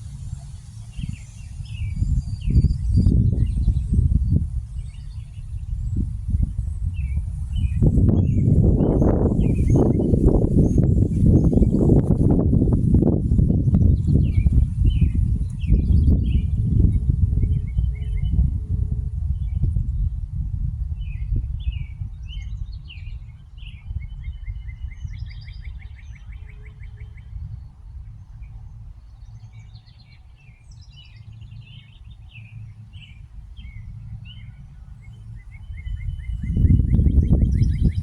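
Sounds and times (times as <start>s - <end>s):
small birds chirping: 0.0s - 18.4s, 21.0s - 38.0s
low rumble: 0.0s - 38.0s.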